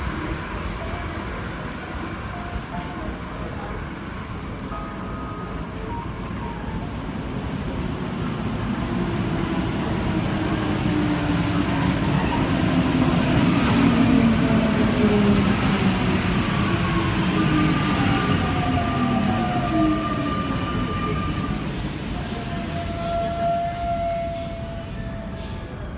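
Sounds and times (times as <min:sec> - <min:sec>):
metro train running: 0:00.0 - 0:25.9.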